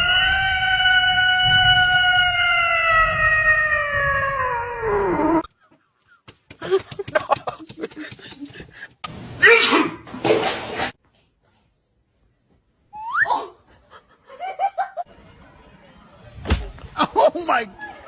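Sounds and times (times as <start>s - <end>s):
animal howling: 0.0s - 5.4s.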